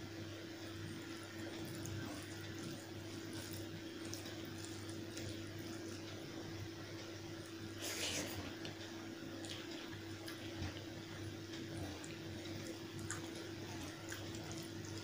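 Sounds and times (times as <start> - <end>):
low electrical hum: 0.0 - 15.0
wet squishy eating sounds: 0.6 - 15.0.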